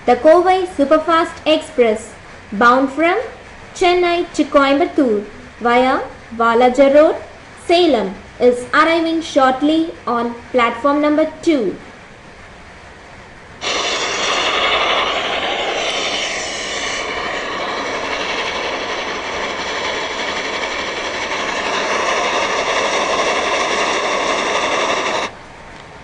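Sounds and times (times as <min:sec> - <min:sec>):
train rushing past: 0:13.6 - 0:25.4.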